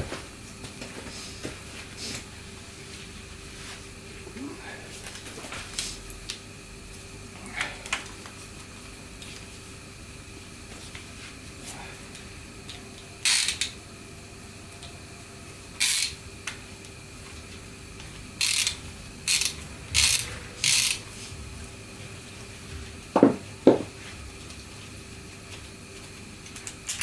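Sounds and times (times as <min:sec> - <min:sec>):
faint steady hum: 0:00.0 - 0:27.0
tool rasping bursts: 0:18.4 - 0:21.0
sharp knocks: 0:23.2 - 0:23.9.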